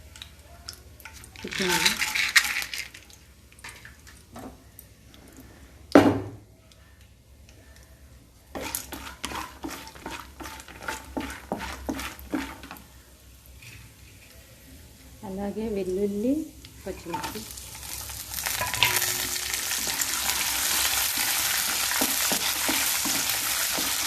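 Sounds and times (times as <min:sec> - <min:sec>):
spatula scraping a pan: 0:08.6 - 0:12.8, 0:13.5 - 0:14.4, 0:17.0 - 0:24.0.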